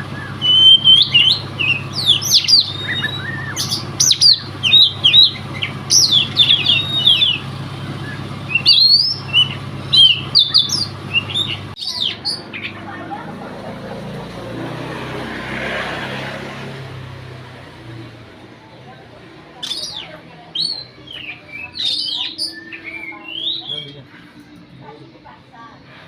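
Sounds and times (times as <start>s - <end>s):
bird singing whistles and chirps: 0.0s - 12.6s, 19.6s - 24.1s.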